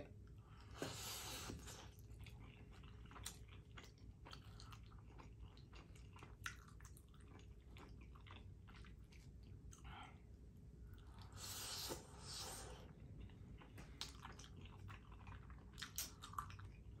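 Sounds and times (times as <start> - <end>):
person chewing: 0.4 - 10.2, 10.8 - 17.0
wet mouth clicks and smacks: 15.8 - 16.6.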